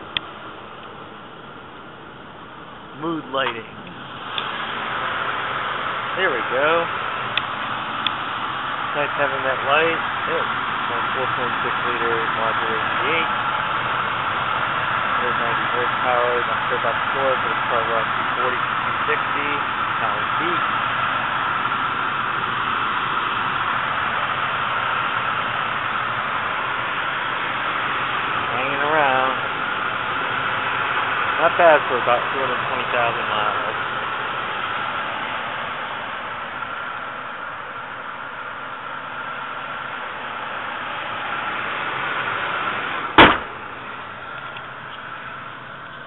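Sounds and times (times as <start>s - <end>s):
car engine idling: 0.0s - 46.0s
sharp loud thump: 43.1s - 43.6s.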